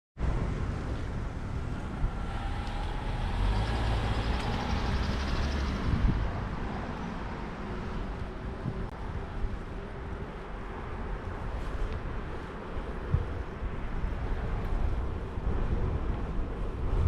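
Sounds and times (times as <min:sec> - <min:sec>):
heavy vehicle low rumble: 0:00.2 - 0:17.0
street traffic noise: 0:00.2 - 0:17.0.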